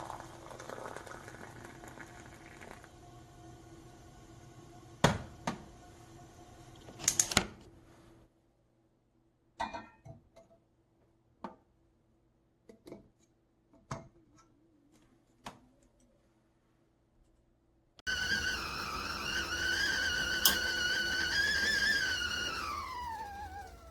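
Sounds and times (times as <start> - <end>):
kettle water boiling: 0.0 - 4.0, 18.1 - 23.9.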